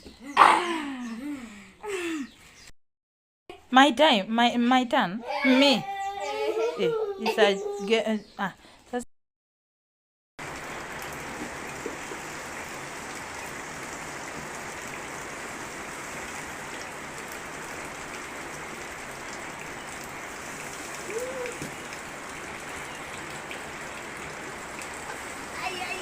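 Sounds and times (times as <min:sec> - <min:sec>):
steady rain falling: 0:10.4 - 0:26.0.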